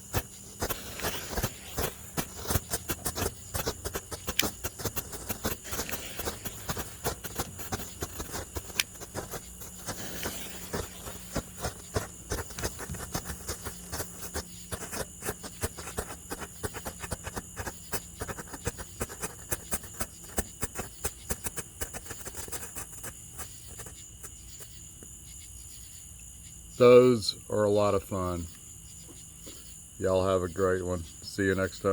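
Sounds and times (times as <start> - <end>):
strobe fireworks popping and crackling: 0.0 - 25.2.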